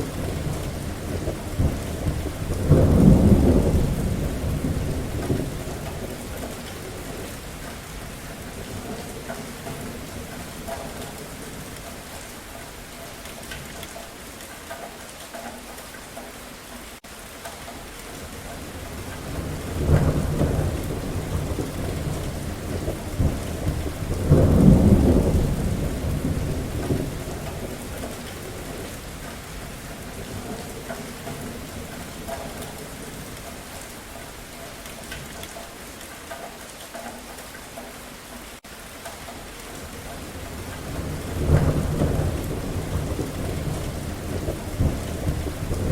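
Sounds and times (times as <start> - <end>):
rolling thunder: 0.0 - 7.5, 18.2 - 33.4, 39.8 - 45.9
steady rain falling: 0.0 - 45.9.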